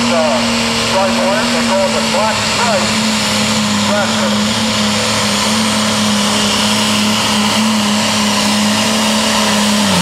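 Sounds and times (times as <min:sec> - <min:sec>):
tractor diesel engine running flat out: 0:00.0 - 0:10.0.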